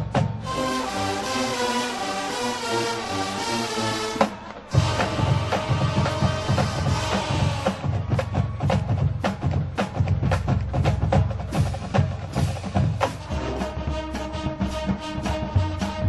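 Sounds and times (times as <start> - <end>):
drums striking hard: 0.0 - 0.6, 4.2 - 16.0
marching band playing: 0.0 - 16.0.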